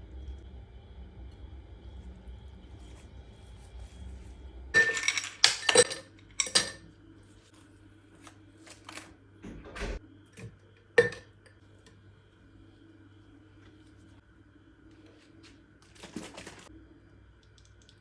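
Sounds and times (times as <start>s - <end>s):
dishes and utensils clattering: 4.8s - 6.9s, 11.0s - 11.4s.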